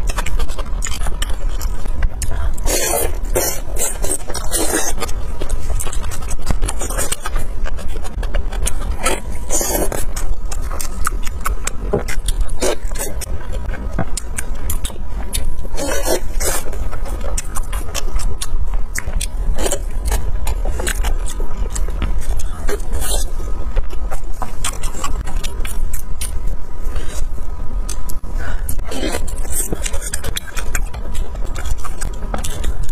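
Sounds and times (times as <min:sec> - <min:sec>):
steady low rumble: 0:00.0 - 0:32.9
wet chewing and mouth clicks: 0:00.0 - 0:32.9.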